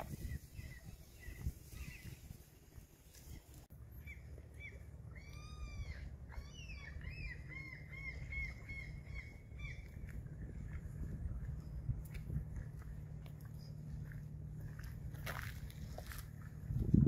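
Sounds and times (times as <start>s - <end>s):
steady low rumble: 0.0s - 17.0s
bird calling: 3.2s - 10.1s.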